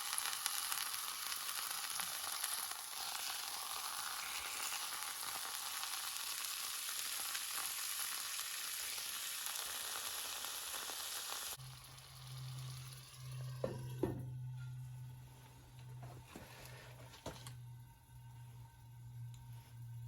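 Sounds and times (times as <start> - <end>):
beef sizzling in a skillet: 0.0 - 13.8
low steady hum: 11.6 - 20.0.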